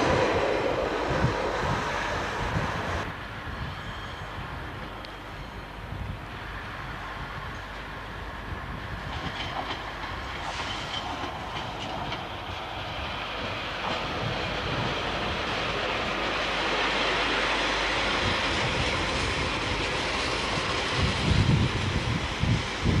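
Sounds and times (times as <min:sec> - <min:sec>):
diesel railbus engine: 0:00.0 - 0:23.0
wheels clicking over rail joints: 0:09.0 - 0:22.6.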